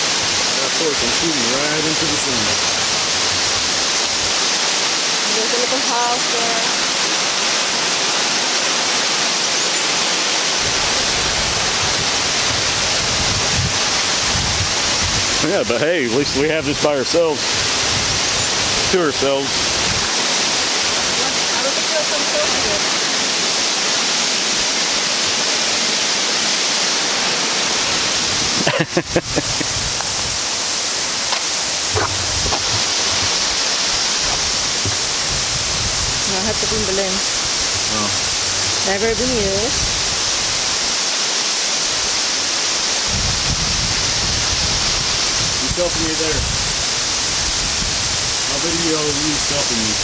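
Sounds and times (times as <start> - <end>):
waterfall rushing: 0.0 - 50.0
wind rumble on microphone: 10.6 - 21.4, 27.8 - 30.6, 31.7 - 41.0, 42.9 - 50.0.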